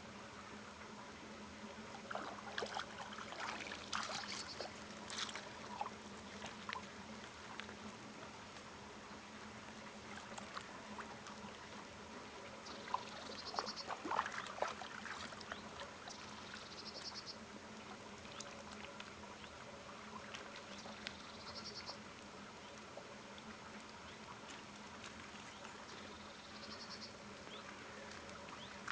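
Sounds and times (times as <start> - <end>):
faint steady hum: 0.0 - 28.9
songbird trilling: 20.8 - 22.0.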